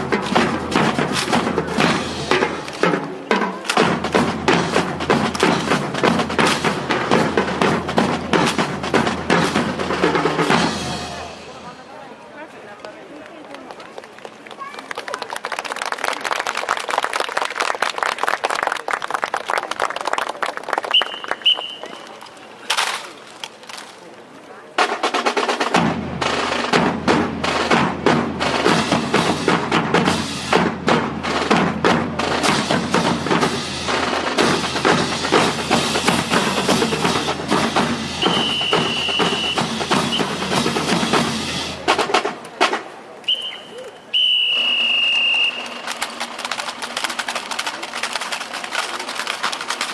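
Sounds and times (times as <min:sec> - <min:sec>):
music with drum beat: 0:00.0 - 0:11.7, 0:24.8 - 0:42.9
crowd applauding: 0:13.2 - 0:22.2, 0:44.7 - 0:49.9
high whistle blasts: 0:20.9 - 0:22.1, 0:38.2 - 0:40.4, 0:43.3 - 0:45.8
sharp clacks: 0:44.2 - 0:49.9.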